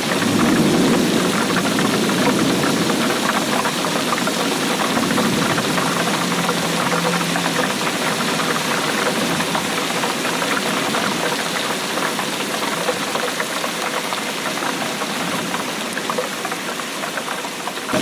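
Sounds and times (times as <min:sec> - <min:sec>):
steady rainfall: 0:00.0 - 0:18.0.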